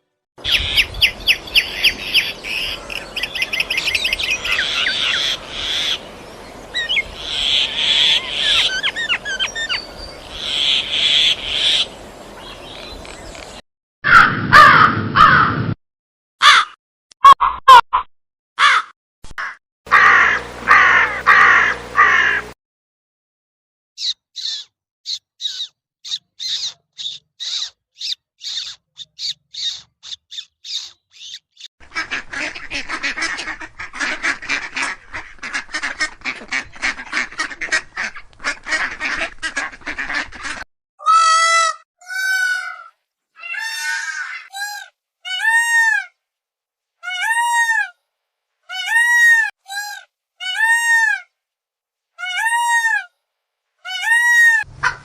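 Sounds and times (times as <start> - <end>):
loud honking bird calls: 0.4 - 12.6, 19.9 - 22.6
many birds chattering: 0.4 - 13.6, 19.9 - 22.5, 24.0 - 40.6.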